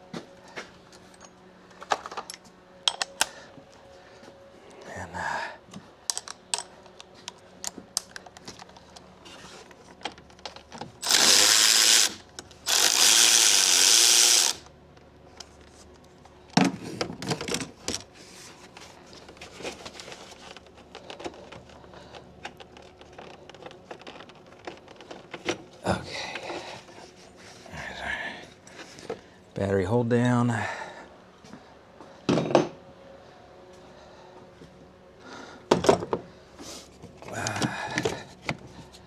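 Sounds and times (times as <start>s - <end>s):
tools clinking: 1.1s - 3.3s
cordless power tool whirring: 11.0s - 14.7s.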